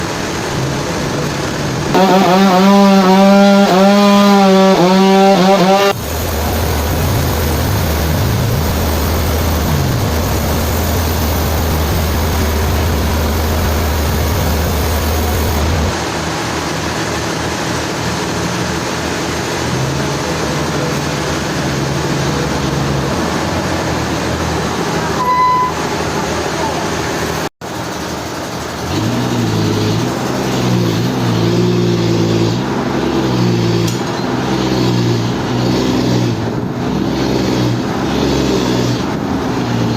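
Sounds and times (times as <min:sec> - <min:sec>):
sawmill machinery humming: 0:00.0 - 0:16.7.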